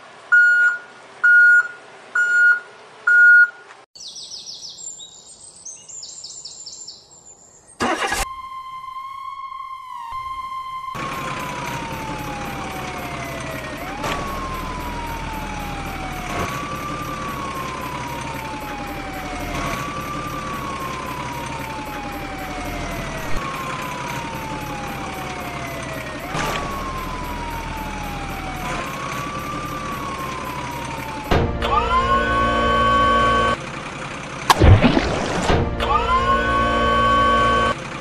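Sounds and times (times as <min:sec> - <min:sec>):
electronic siren wailing: 0:07.8 - 0:33.6, 0:35.8 - 0:37.8
steady siren blare: 0:07.8 - 0:33.6, 0:34.5 - 0:37.8.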